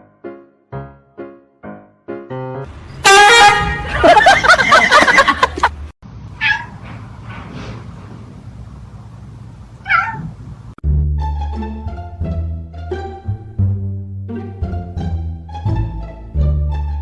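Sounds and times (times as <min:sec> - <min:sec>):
cat meowing: 0:06.4 - 0:06.8, 0:09.8 - 0:10.4.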